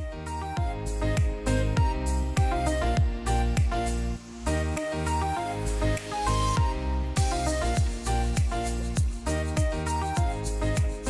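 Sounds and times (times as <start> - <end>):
kick drum beat: 0.0 - 3.8, 6.6 - 11.0.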